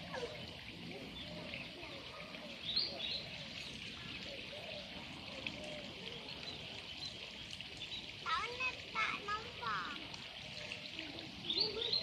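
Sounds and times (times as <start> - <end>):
birds calling and chirping: 0.0 - 12.0.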